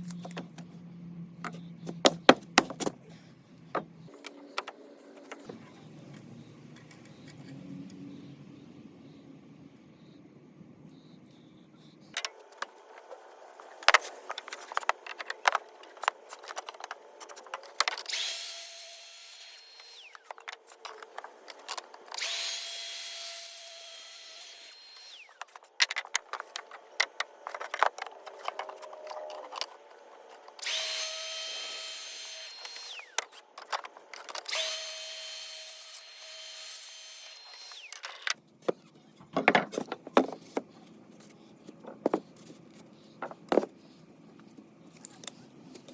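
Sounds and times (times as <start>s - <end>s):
boards knocking and clattering: 1.8s - 3.0s, 38.6s - 40.7s
saw cutting through lumber: 12.6s - 25.6s, 26.4s - 38.0s.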